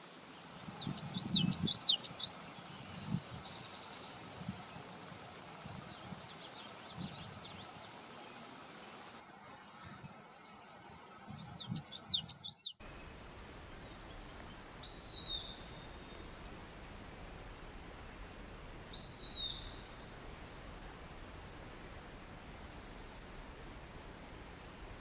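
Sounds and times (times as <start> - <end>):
birds singing: 0.2 - 9.2, 11.3 - 17.3.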